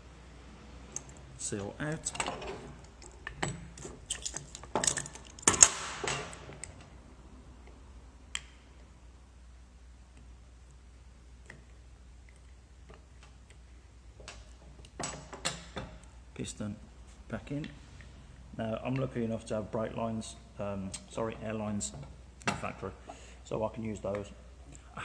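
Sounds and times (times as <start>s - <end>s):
metal parts clicking and clinking: 0.9s - 6.9s.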